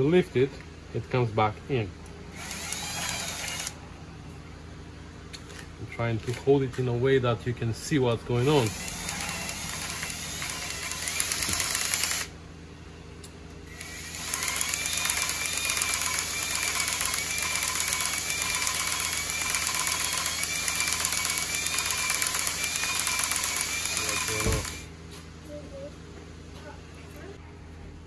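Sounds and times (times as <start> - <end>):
cordless drill whining: 2.3 - 3.8, 8.4 - 12.3, 13.7 - 24.9
valve grinding on its seat: 2.3 - 3.8, 8.4 - 12.3, 13.8 - 24.9.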